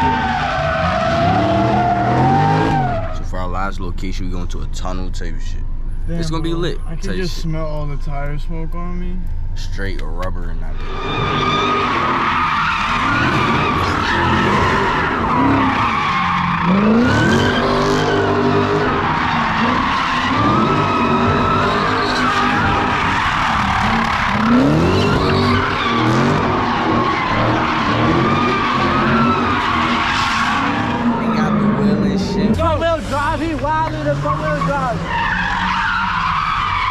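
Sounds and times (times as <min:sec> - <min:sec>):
car engine revving: 0:00.0 - 0:36.9
tyres squealing: 0:10.7 - 0:36.9.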